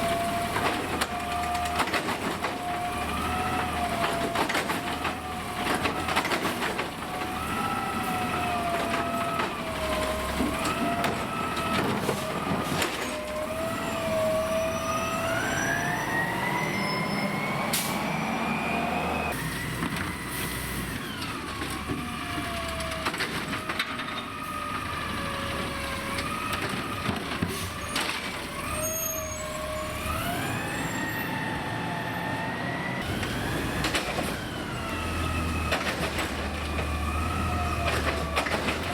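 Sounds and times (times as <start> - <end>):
hydraulics whining: 0.0 - 23.7
garbage truck engine revving: 2.6 - 21.6, 29.5 - 38.9.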